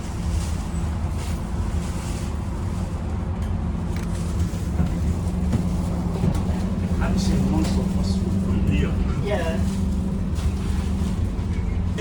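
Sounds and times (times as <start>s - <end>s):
bus diesel engine droning: 0.0s - 12.0s
constant rushing noise: 0.0s - 12.0s.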